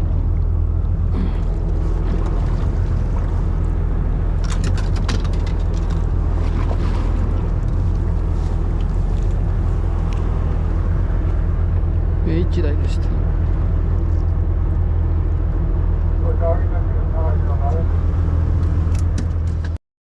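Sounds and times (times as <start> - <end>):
boat engine humming: 0.0 - 19.8
sharp clicks and rattles: 4.4 - 6.1.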